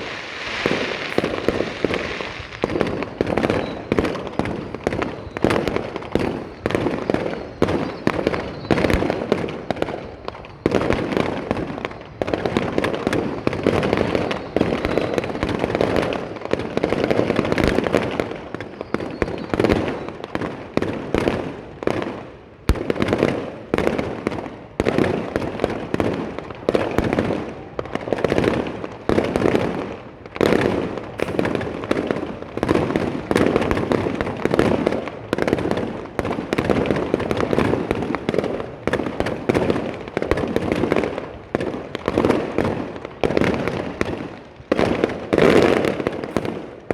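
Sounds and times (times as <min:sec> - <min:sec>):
firework shells bursting: 0:00.6 - 0:09.7, 0:17.3 - 0:19.5, 0:22.7 - 0:23.7, 0:28.6 - 0:41.5, 0:45.6 - 0:46.9.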